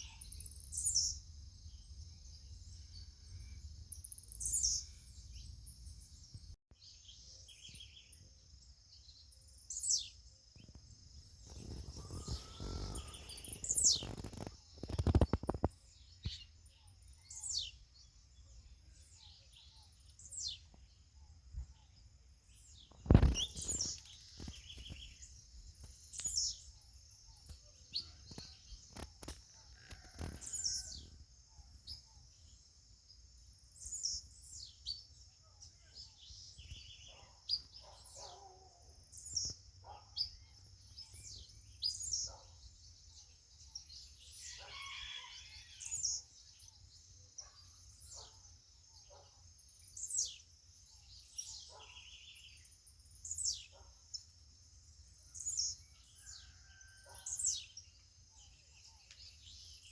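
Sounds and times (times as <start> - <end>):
high insect drone: 11.2 - 14.2
birds whistling falling notes: 11.4 - 15.6, 23.0 - 25.2.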